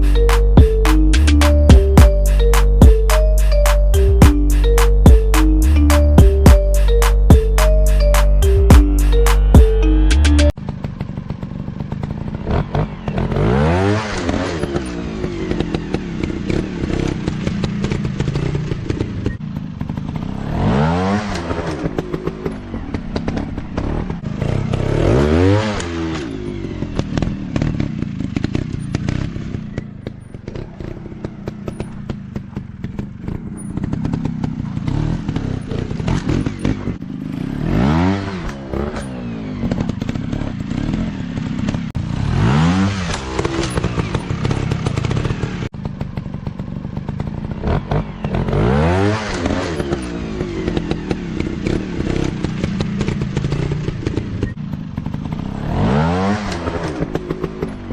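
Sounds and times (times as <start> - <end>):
off-road motorcycle engines revving: 0.0 - 57.9
bikes clattering over rough ground: 25.8 - 37.4.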